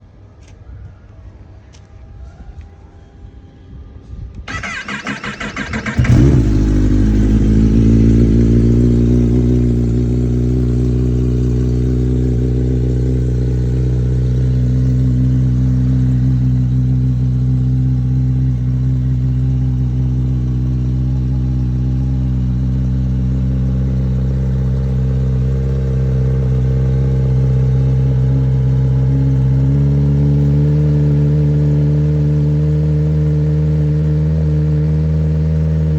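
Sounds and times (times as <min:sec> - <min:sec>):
starter motor cranking: 0:04.5 - 0:07.0
motorcycle engine idling: 0:04.5 - 0:34.0.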